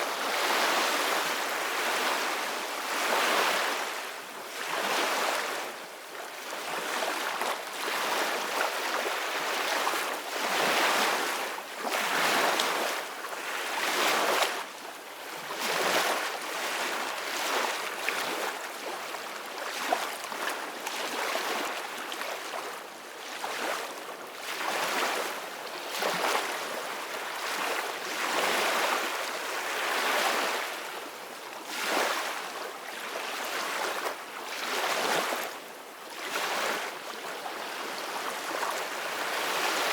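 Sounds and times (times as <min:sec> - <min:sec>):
ocean waves breaking on beach: 0:00.0 - 0:05.8, 0:19.2 - 0:39.9.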